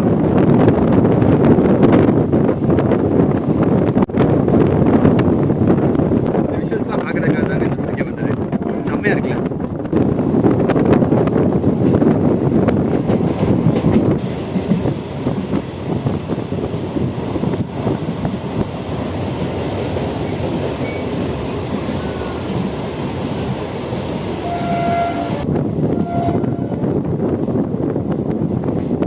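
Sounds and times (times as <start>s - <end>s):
train wheels rumbling on track: 0.0s - 29.0s
train horn: 24.4s - 26.8s.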